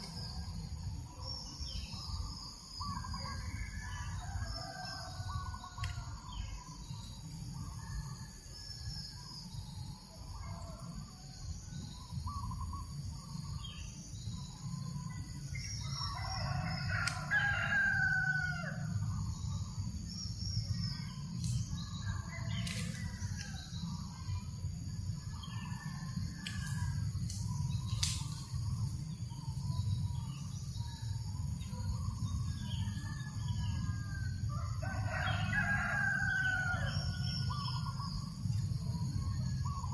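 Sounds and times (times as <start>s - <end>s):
rooster crowing: 16.0s - 18.9s, 34.5s - 37.5s.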